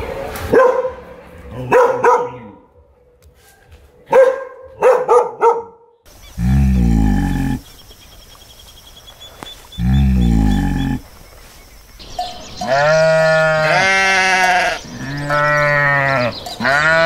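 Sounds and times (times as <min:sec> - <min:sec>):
long low animal call: 0:06.3 - 0:07.8, 0:09.8 - 0:11.1.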